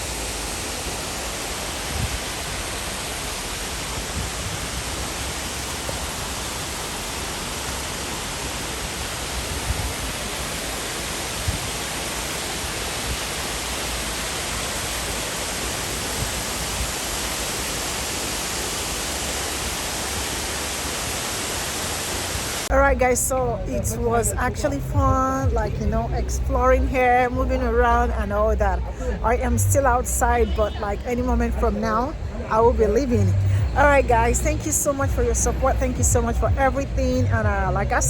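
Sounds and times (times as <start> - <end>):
waterfall rushing: 0.0 - 24.5
soft low thumps: 24.9 - 26.8, 32.6 - 38.0.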